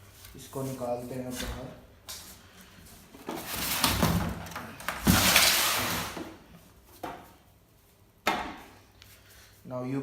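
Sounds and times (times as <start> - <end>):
cardboard and packing scraping: 5.0 - 6.3.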